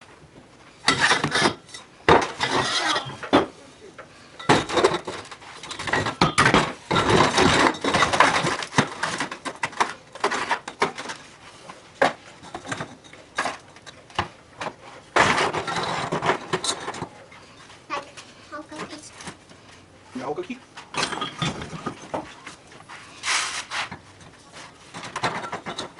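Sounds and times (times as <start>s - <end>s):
hard objects clattering and clinking: 0.8s - 19.9s, 20.8s - 25.9s.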